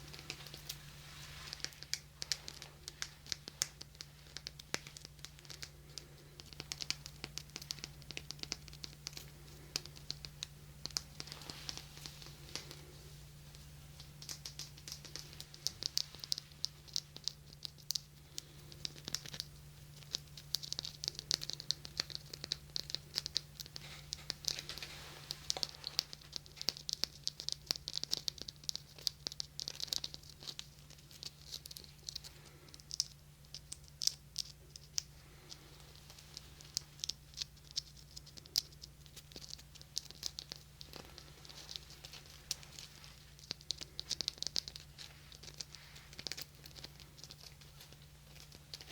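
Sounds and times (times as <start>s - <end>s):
fingertip tapping and scratching: 0.0s - 12.8s
faint low hum: 0.0s - 48.9s.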